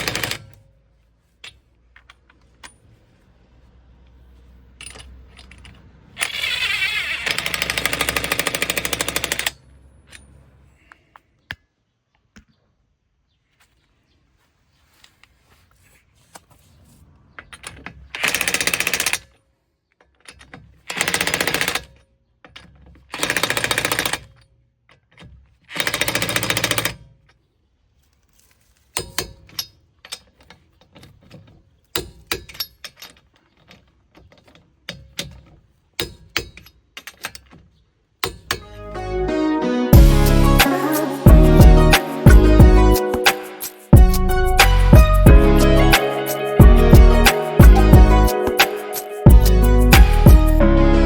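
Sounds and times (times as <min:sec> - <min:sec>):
impact wrench hammering: 0:00.0 - 0:00.6, 0:07.3 - 0:09.5.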